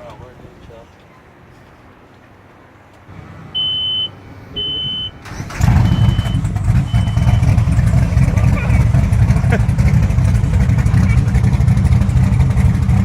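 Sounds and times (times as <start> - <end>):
boat engines starting and rumbling: 0.0 - 13.0
electronic beeps: 3.6 - 7.6.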